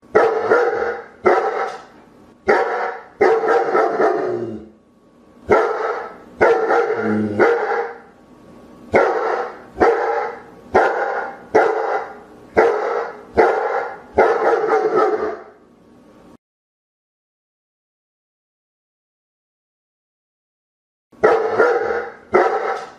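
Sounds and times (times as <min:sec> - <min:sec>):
dog barking deeply: 0:00.1 - 0:04.7, 0:05.5 - 0:08.1, 0:08.9 - 0:15.6, 0:21.2 - 0:22.9.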